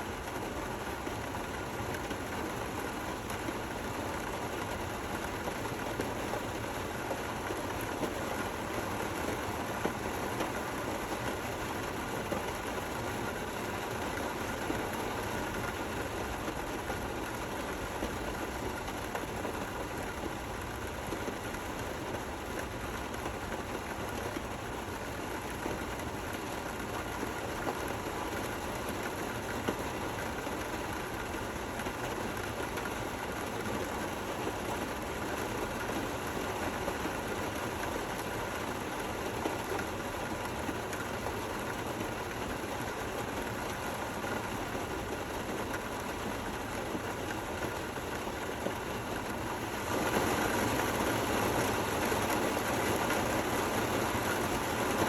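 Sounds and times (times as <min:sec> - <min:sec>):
rain falling: 0:03.2 - 0:55.0.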